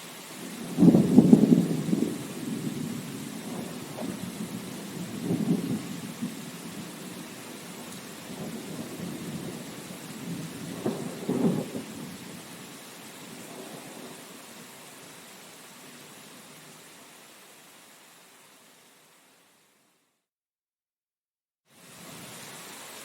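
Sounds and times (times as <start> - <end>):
rain hiss: 0.0 - 20.2, 21.7 - 23.0
thunder rolling: 0.6 - 12.4.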